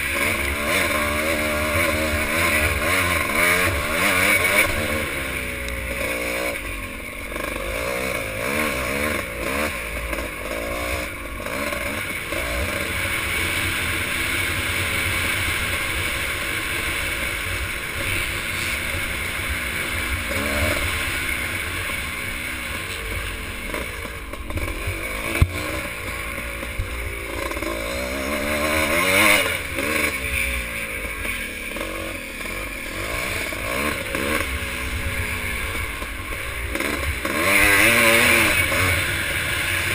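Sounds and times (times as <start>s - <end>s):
motorcycle engines revving: 0.0s - 39.9s.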